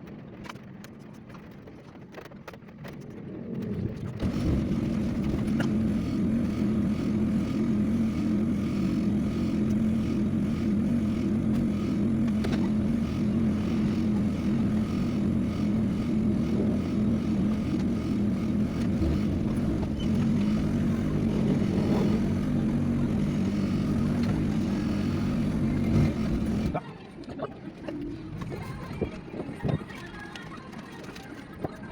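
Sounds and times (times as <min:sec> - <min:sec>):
vehicle engine cruising: 0:02.1 - 0:31.8.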